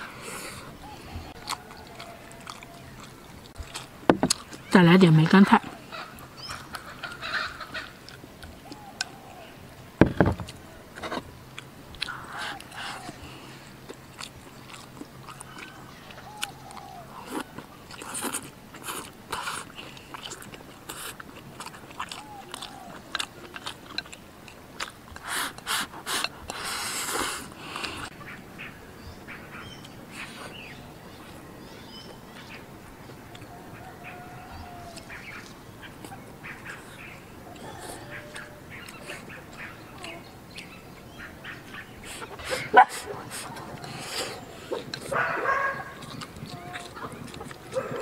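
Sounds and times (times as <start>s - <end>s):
mouth clicks: 0.0s - 5.8s, 7.8s - 28.1s, 34.7s - 48.0s
person chewing and biting: 1.3s - 4.7s, 10.0s - 28.1s, 44.8s - 48.0s
loud thump: 10.0s - 10.5s.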